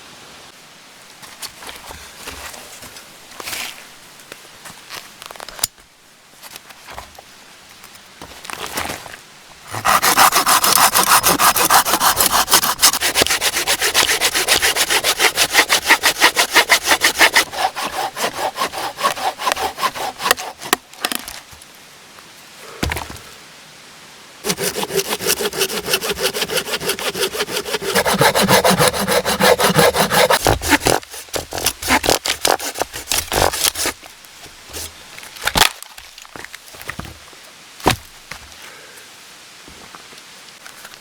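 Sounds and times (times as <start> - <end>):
hand saw cutting wood: 9.7 - 21.2, 24.4 - 34.0.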